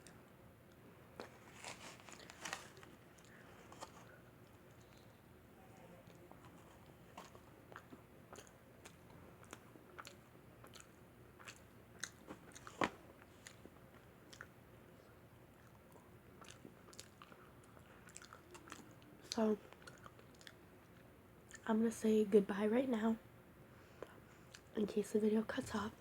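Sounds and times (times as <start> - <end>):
person chewing pizza: 0.7 - 5.2, 5.8 - 21.6
mouth clicks and crunches: 6.0 - 14.6, 15.5 - 21.6.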